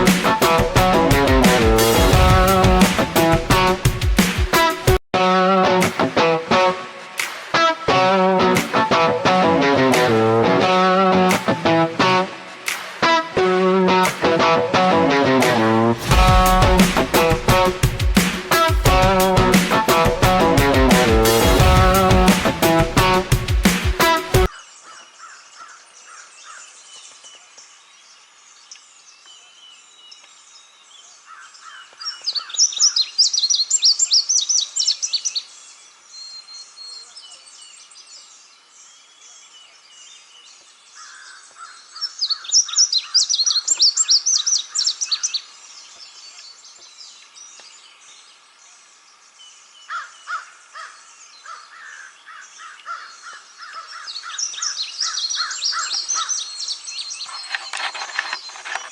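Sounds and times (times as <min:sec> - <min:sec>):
wild birds calling and singing: 0:16.3 - 0:58.9
rapid repeated bird calls: 0:24.0 - 0:30.3, 0:31.0 - 0:58.9.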